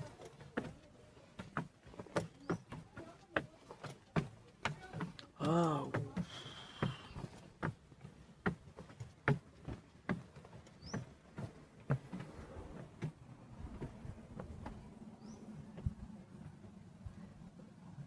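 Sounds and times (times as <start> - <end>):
footsteps tapping: 0.0 - 14.9.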